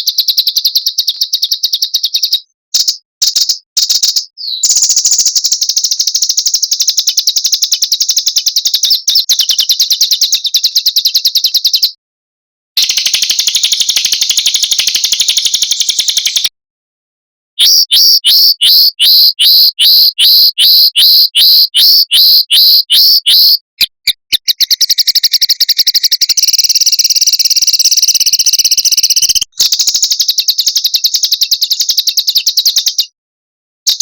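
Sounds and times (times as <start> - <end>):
songbird trilling: 4.3 - 11.9, 17.6 - 33.0.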